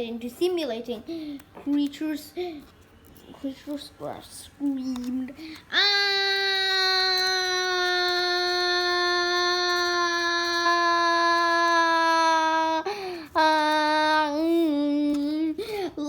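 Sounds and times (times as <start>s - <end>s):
child screaming: 5.7s - 14.3s.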